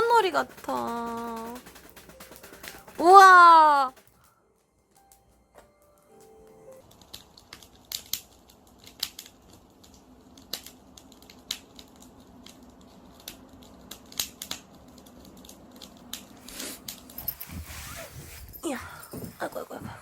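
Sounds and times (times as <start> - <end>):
campfire crackling and popping: 6.2 - 16.3.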